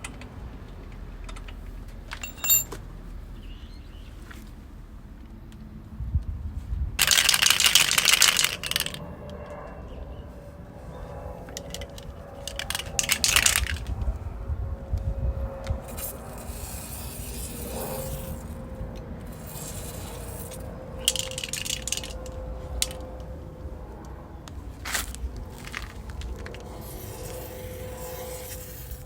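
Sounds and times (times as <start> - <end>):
metal tools clinking: 2.1 - 2.8, 7.0 - 9.0, 11.5 - 13.9, 19.2 - 23.3, 24.8 - 29.0
scrapes: 24.6 - 29.0.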